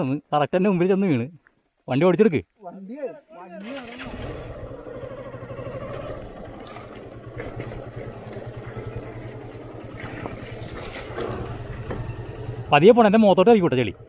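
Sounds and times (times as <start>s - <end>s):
motorcycle engine running: 4.0s - 14.0s.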